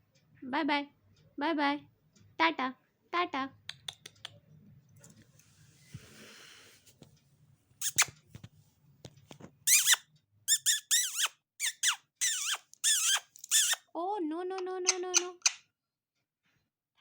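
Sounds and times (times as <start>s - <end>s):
parrot screeching: 9.7s - 13.8s.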